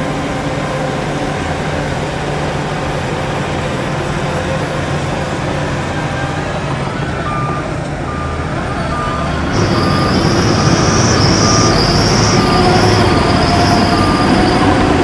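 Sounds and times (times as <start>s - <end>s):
heavy diesel machinery running: 0.0s - 15.0s
reversing alarm beeping: 3.7s - 15.0s
high-pitched wavering squeal: 8.8s - 15.0s.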